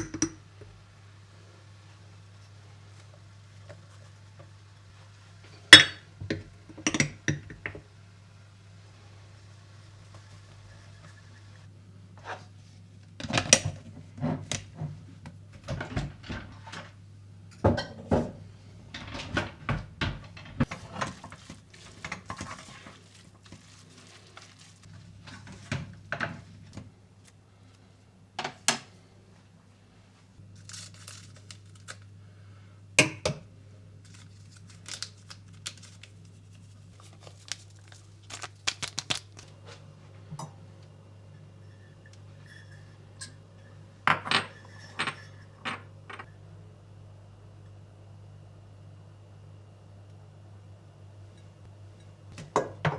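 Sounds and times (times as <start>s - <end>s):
rustling or crinkling: 20.6s - 27.4s, 30.4s - 32.1s, 34.0s - 39.9s
dishes and utensils clinking: 41.6s - 46.3s.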